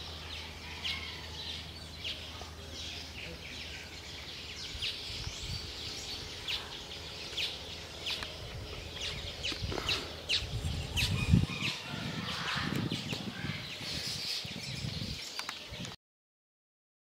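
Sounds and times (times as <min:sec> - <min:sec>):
small birds chirping: 0:00.0 - 0:16.0
low rumble: 0:03.5 - 0:15.2.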